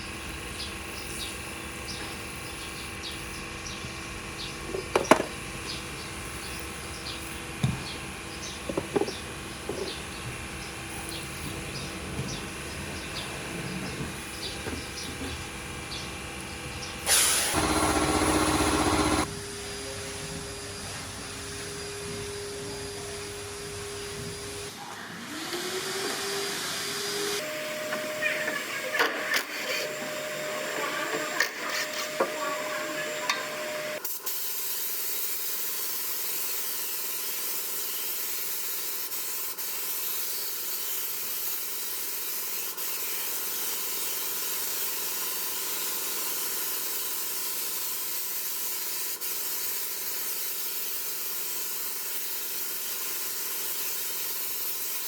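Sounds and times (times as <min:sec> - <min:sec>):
spray nozzle hissing: 0:17.0 - 0:19.3, 0:32.2 - 0:55.0.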